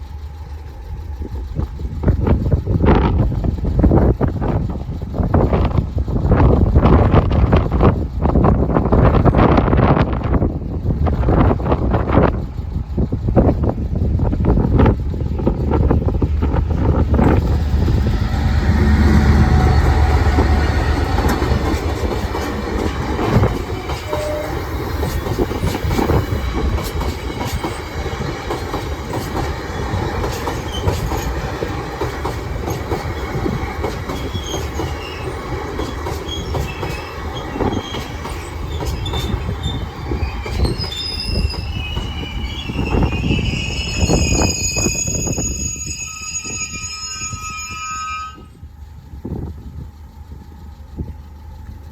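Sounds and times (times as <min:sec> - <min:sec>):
train rumbling past: 0:00.0 - 0:51.9
wheel clicks over rail joints: 0:14.7 - 0:42.1
high-pitched wheel squeal: 0:17.3 - 0:26.4, 0:34.2 - 0:35.4, 0:36.3 - 0:48.6.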